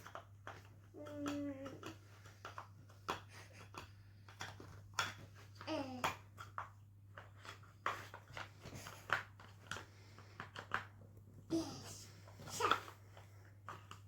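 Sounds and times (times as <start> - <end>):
child's vocal sound: 11.5 - 12.9.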